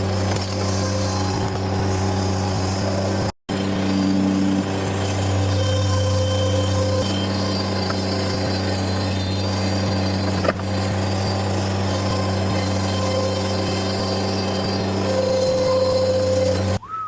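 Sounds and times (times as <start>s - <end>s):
diesel engine running: 0.0s - 16.8s.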